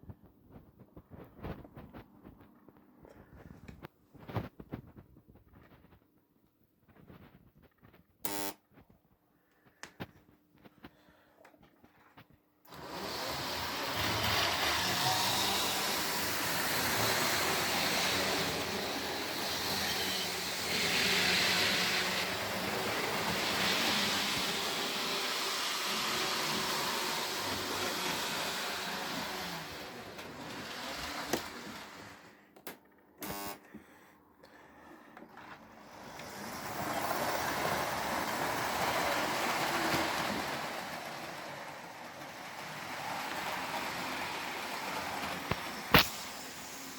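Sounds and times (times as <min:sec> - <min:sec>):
model trains rumbling: 0:35.9 - 0:46.9.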